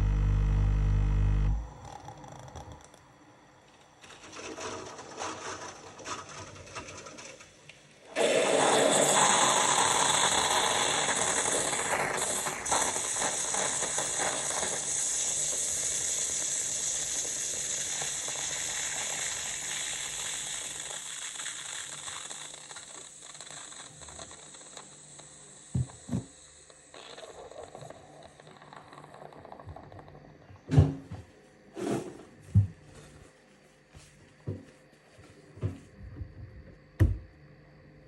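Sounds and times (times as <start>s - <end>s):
coffee machine pump rattling hiss: 8.2s - 29.8s.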